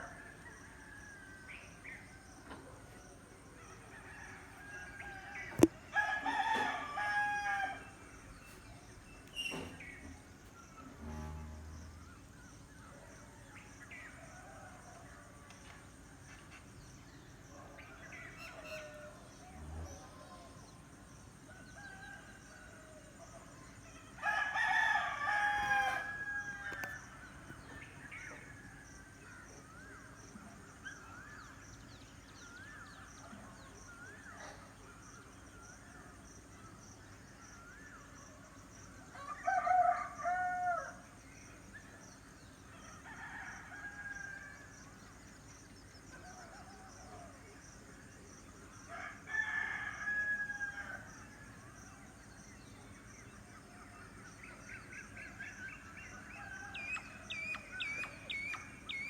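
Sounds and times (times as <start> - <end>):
rooster crowing: 4.0 - 7.9, 24.2 - 26.9, 48.9 - 51.1.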